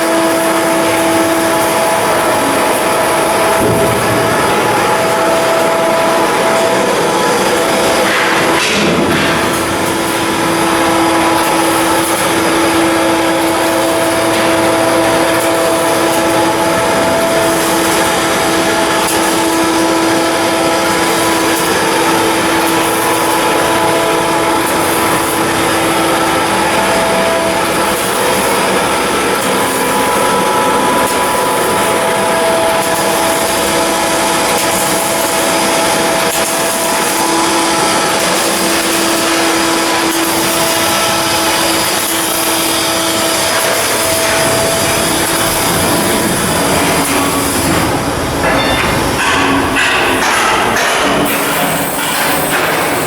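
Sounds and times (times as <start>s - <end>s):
shipyard machinery humming: 0.0s - 53.0s.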